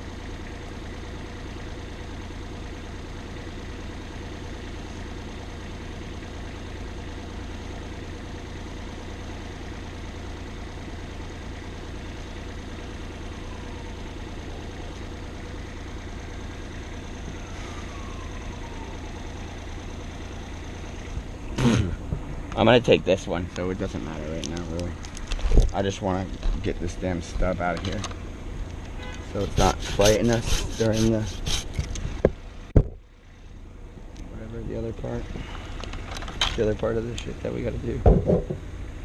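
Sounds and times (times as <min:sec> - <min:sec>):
engine idling: 0:00.0 - 0:39.0
faint falling whines: 0:12.9 - 0:24.9.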